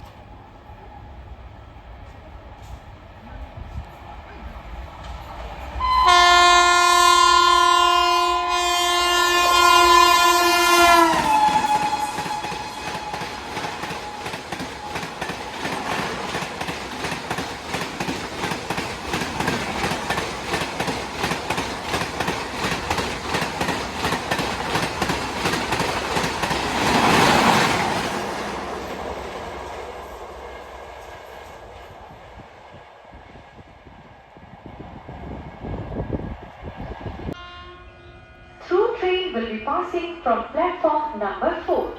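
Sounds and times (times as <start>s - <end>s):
train wheels clickety-clack: 2.0s - 5.8s, 10.8s - 32.1s
train horn blast: 5.8s - 15.2s, 37.4s - 40.2s.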